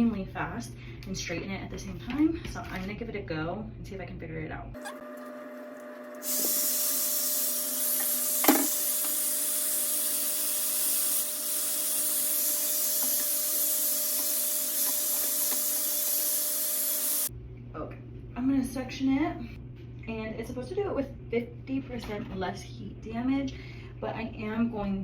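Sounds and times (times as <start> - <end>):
hot-air brush blowing: 4.8 - 17.3.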